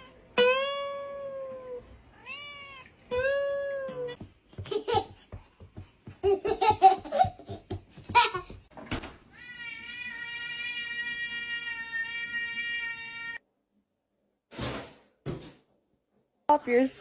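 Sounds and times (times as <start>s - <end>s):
toddler giggling: 4.5s - 5.4s, 6.1s - 8.6s.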